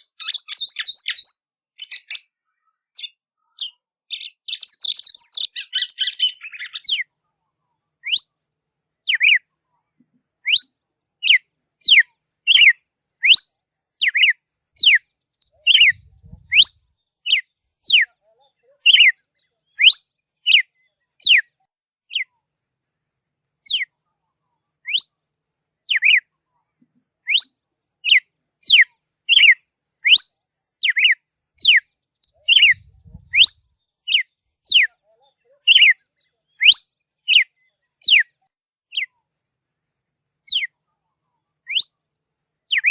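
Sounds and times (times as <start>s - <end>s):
bird chirping: 0.0s - 42.9s
songbird whistled notes: 8.0s - 8.3s, 10.4s - 18.1s, 18.9s - 21.5s, 23.6s - 23.9s, 24.8s - 25.1s, 25.9s - 26.3s, 27.2s - 34.9s, 35.7s - 38.3s, 40.5s - 40.8s, 41.6s - 42.0s.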